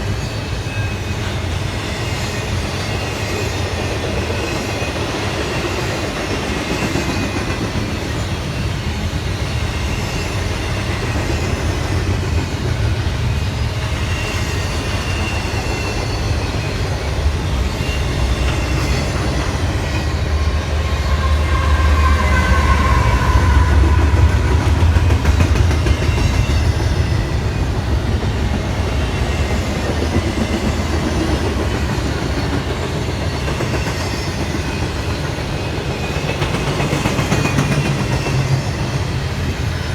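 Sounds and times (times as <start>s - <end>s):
train rumbling past: 0.0s - 39.9s
faint high wheel squeal: 13.4s - 27.5s.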